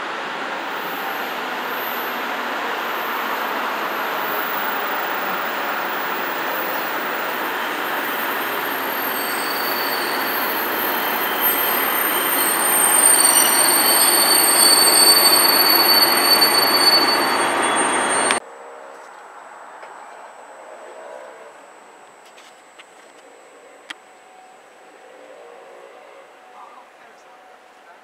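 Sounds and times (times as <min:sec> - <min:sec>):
train engine and wheels rushing: 0:00.0 - 0:18.4
high-pitched wheel squealing: 0:00.7 - 0:18.4.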